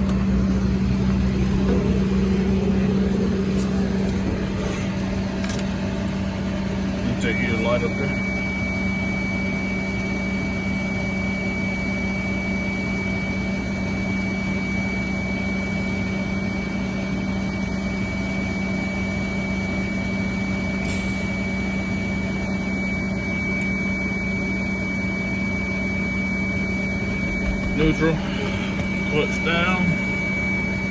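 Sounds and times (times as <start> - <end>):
diesel engines idling: 0.0 - 11.0, 19.9 - 30.9.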